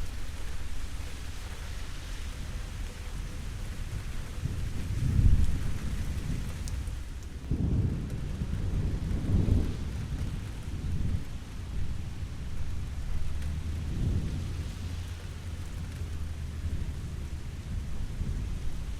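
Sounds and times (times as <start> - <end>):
steady rain: 0.0 - 18.9
thunder rumbling: 3.2 - 18.9.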